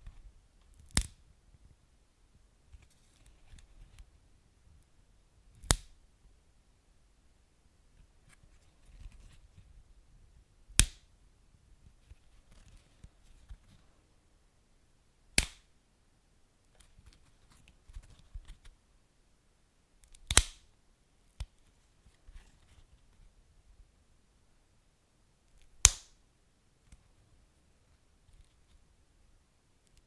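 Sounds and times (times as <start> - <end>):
small fire crackles: 0.6 - 1.2.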